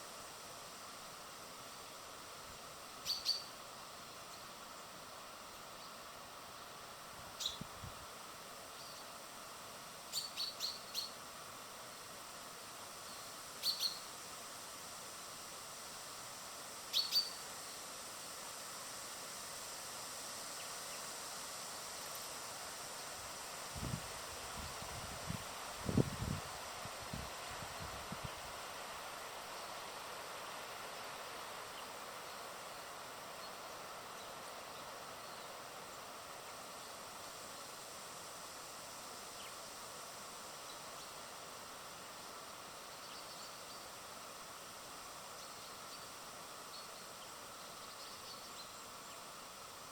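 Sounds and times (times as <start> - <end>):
steady outdoor hiss: 0.0 - 49.9
small birds chirping: 3.0 - 3.6, 7.3 - 7.7, 8.7 - 9.2, 10.0 - 11.2, 13.0 - 14.2, 16.9 - 17.8, 30.9 - 37.8, 42.0 - 44.2, 45.0 - 49.6.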